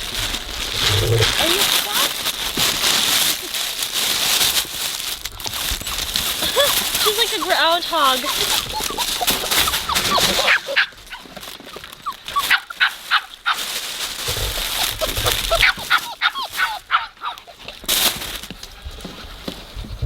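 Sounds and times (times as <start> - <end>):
scuffling noise: 0.0 - 20.0
puppies yipping and whining: 5.4 - 13.7, 14.5 - 17.9.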